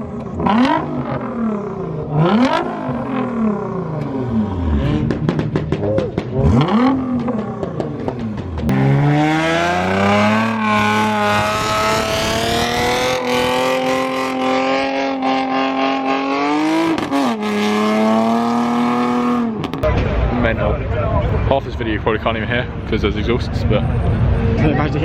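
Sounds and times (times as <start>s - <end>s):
car engines revving hard: 0.0s - 20.7s
engine crackling pops: 5.0s - 8.8s.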